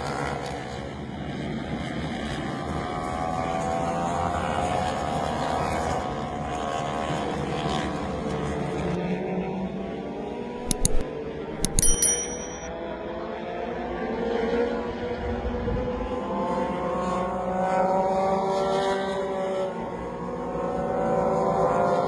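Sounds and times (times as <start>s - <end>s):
sharp clicks: 10.6s - 11.0s, 11.6s - 12.7s
short ringing tone: 10.6s - 11.0s, 11.6s - 12.7s.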